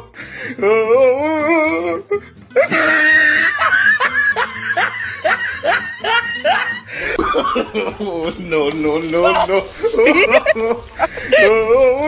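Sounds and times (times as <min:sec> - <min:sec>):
loud laughter: 0:02.6 - 0:08.5, 0:09.3 - 0:12.0.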